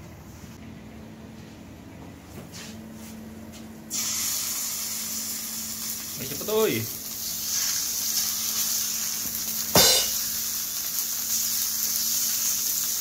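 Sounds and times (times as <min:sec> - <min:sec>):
fish sizzling in hot oil: 0:03.9 - 0:13.0.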